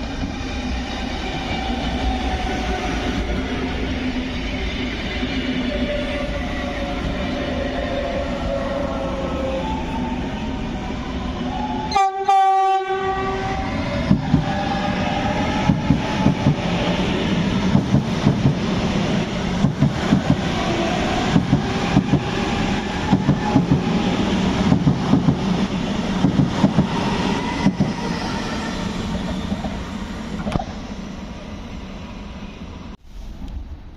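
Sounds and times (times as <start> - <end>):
train rumble: 0.0 - 33.9
train horn blast: 11.9 - 13.8.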